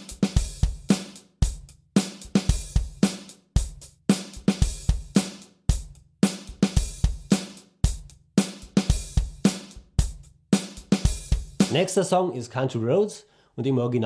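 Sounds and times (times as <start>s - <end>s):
open hi-hat: 0.0s - 12.0s
drum kit rock beat: 0.0s - 12.1s.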